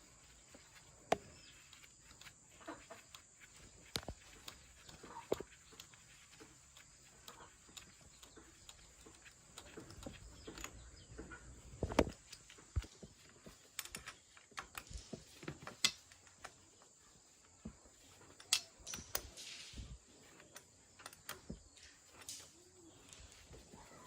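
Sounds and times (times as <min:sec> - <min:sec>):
light handling clicks and knocks: 0:03.0 - 0:23.8.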